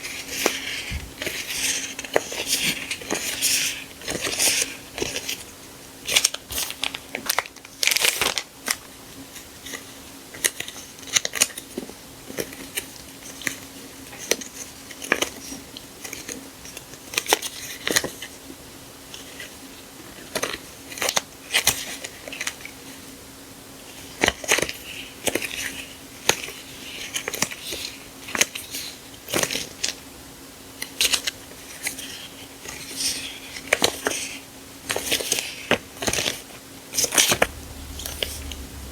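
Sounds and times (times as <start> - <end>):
faint steady hum: 37.2 - 38.9.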